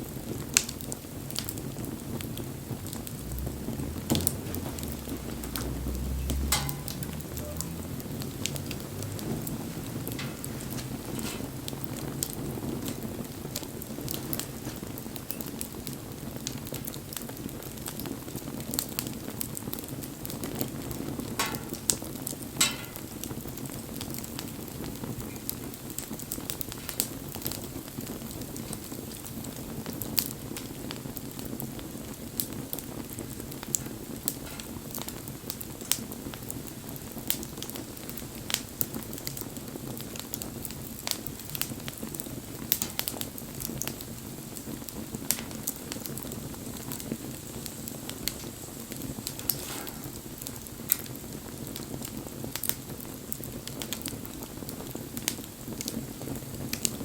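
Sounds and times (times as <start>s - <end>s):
fire crackling and popping: 0.0s - 57.0s
fire hissing: 0.0s - 57.0s.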